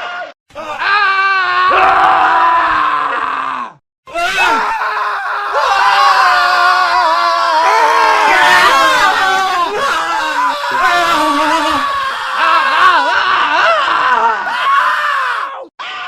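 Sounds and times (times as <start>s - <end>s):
men screaming: 0.6s - 16.0s.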